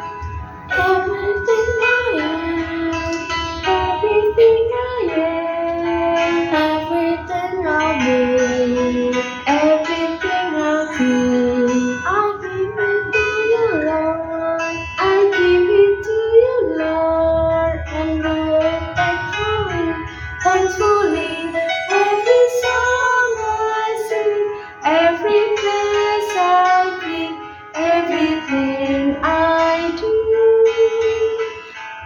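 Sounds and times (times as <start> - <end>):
guitar accompaniment: 0.0 - 32.0
high voice singing: 0.7 - 15.6.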